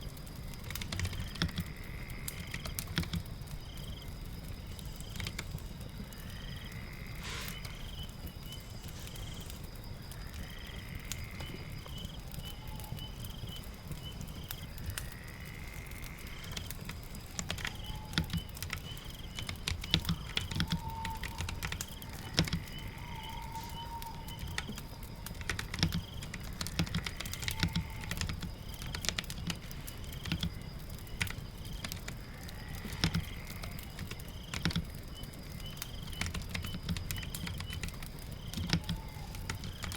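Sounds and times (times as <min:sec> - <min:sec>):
crackling fire: 0:00.0 - 0:39.9
rain: 0:00.0 - 0:39.9
typing on a keyboard: 0:00.5 - 0:04.0, 0:04.7 - 0:05.6, 0:16.3 - 0:39.9.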